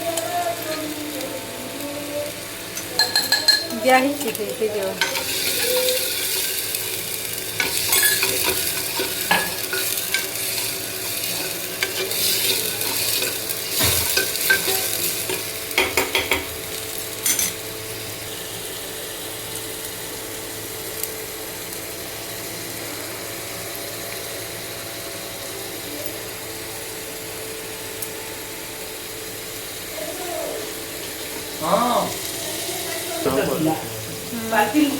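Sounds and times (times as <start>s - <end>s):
chicken sizzling in a pan: 0.0s - 34.9s
spatula scraping and clinking pan: 5.0s - 6.8s, 7.6s - 16.5s.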